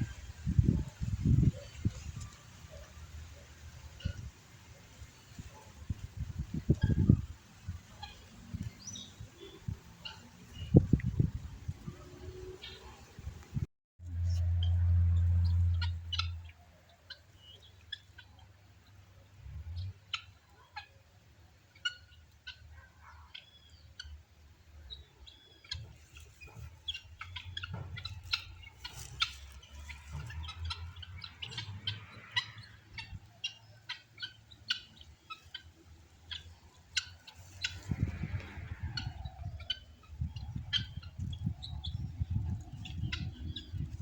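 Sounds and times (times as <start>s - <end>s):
birds chirping and calling: 0.0s - 13.6s, 14.2s - 21.0s, 24.8s - 44.0s
low rumble: 14.0s - 16.5s.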